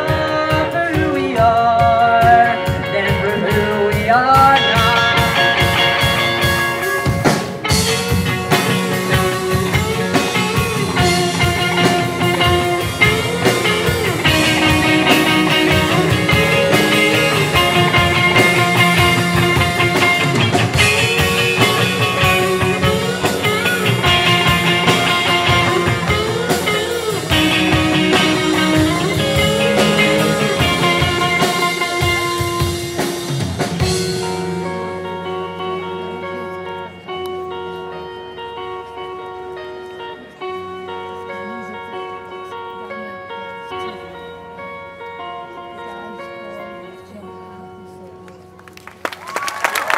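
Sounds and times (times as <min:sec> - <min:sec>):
drums playing a steady beat: 0:00.0 - 0:36.6
melodic electric guitar: 0:00.0 - 0:49.9.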